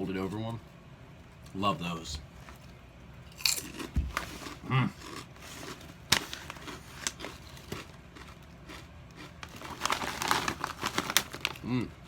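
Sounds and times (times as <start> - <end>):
chewing crunchy potato chips: 3.3 - 11.9.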